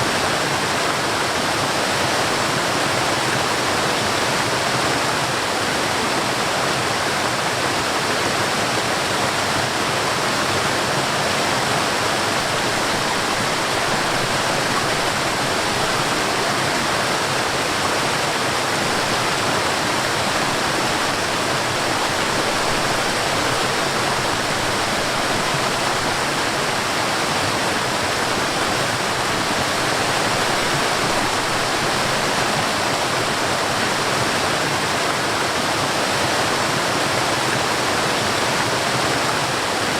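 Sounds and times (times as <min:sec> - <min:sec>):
stream and waterfall rushing: 0:00.0 - 0:39.9.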